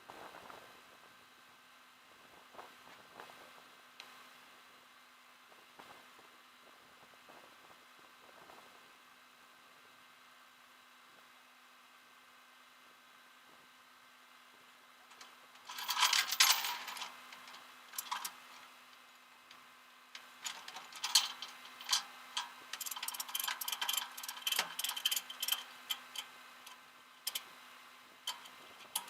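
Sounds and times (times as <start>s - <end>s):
sharp clicks and light rattles: 15.1s - 27.5s, 28.2s - 29.0s.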